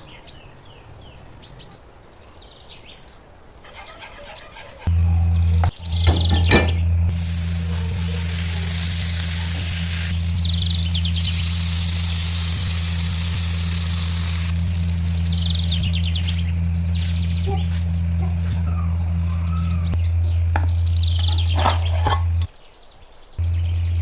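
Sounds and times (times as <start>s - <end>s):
steady low hum: 4.9s - 22.5s, 23.4s - 24.0s
food sizzling in oil: 7.1s - 14.9s.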